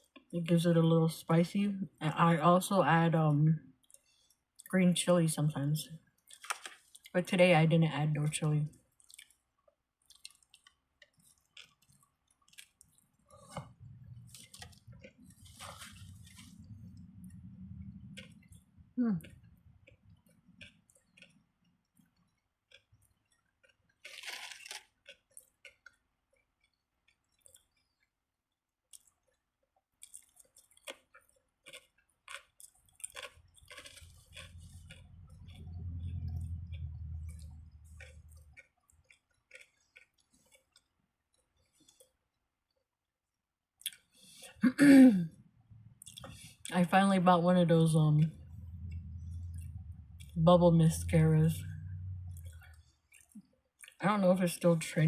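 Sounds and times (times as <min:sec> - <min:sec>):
close-up chewing: 0:08.8 - 0:28.2, 0:28.9 - 0:42.2, 0:51.8 - 0:54.0
low rumble: 0:15.4 - 0:19.7, 0:34.5 - 0:38.5, 0:47.3 - 0:52.7.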